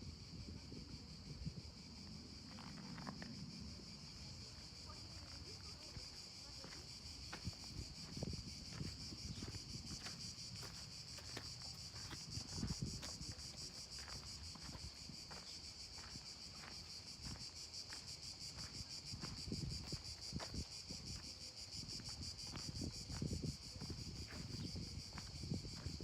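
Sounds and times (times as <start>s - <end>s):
wind rumble on microphone: 0.0s - 4.2s, 7.2s - 15.4s, 18.6s - 26.0s
insect chorus buzzing: 0.0s - 26.0s.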